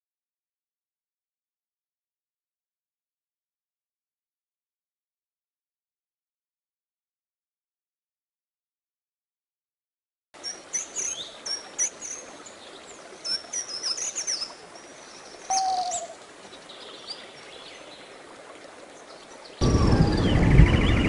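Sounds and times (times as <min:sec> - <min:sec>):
birds chirping: 0:10.4 - 0:18.2, 0:18.9 - 0:21.0
lower drawn-out bird call: 0:19.6 - 0:21.0
rush of wind-like noise: 0:19.6 - 0:21.0.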